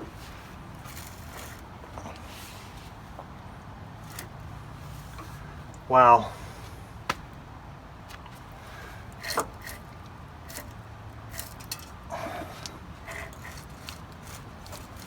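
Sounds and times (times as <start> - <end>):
light clicks and scrapes: 0.0 - 3.4, 4.0 - 5.5, 8.1 - 15.0.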